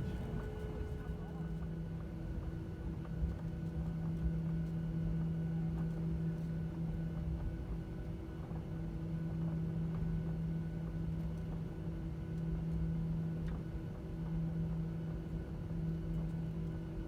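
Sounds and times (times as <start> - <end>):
aircraft cabin hum: 0.0 - 3.5.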